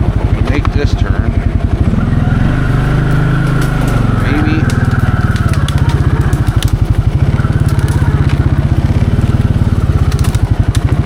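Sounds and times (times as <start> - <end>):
quad engine chugging: 0.0 - 11.0
twigs cracking and snapping: 3.0 - 11.0.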